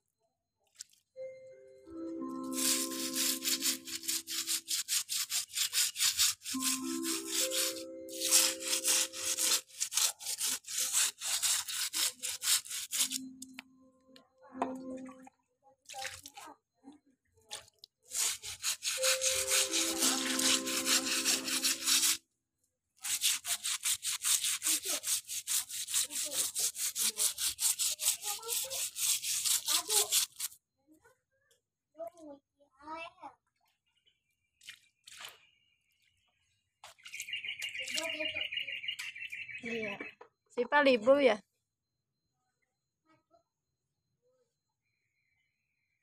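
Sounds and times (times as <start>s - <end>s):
held musical tones: 1.2s - 4.3s, 6.6s - 9.4s, 19.0s - 22.1s
stiff brush scrubbing floor: 2.4s - 13.4s, 18.1s - 22.2s, 23.0s - 30.6s.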